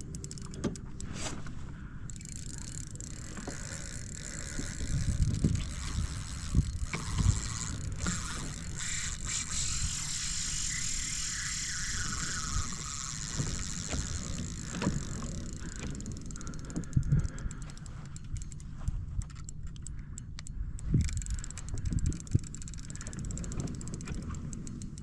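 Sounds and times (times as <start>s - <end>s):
fishing reel drag ticking: 0.0s - 25.0s
water and wind hiss: 3.3s - 17.1s.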